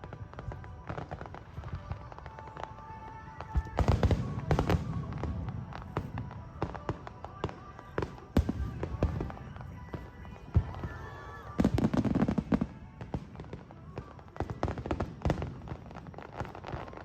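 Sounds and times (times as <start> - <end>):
fireworks bangs and crackle: 0.0 - 17.0
music: 0.0 - 17.0.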